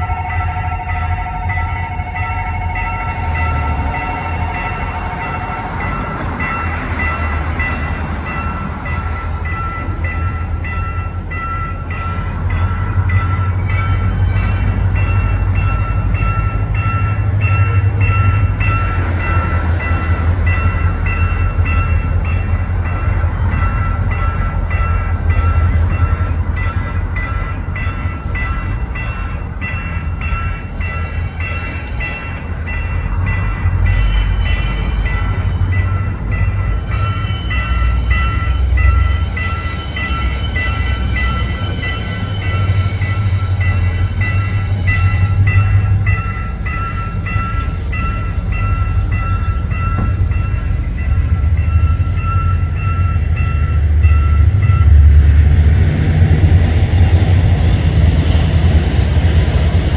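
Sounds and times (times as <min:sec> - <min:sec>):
two-tone train horn: 0:00.0 - 0:05.8
level-crossing warning bell: 0:00.0 - 0:59.9
train engine and wheel rumble: 0:00.0 - 0:59.9.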